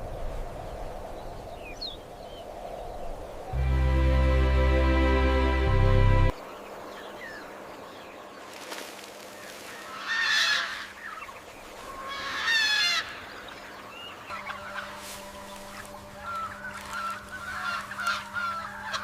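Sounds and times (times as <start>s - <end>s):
large bird harsh calls: 9.7s - 19.0s.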